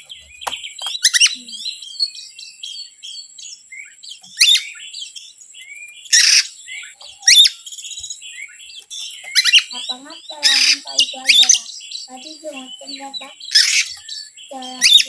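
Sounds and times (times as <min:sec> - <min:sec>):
songbirds chattering: 0:00.0 - 0:15.0
bird harsh rasping squawk: 0:06.2 - 0:06.5, 0:09.4 - 0:12.2, 0:13.2 - 0:15.0.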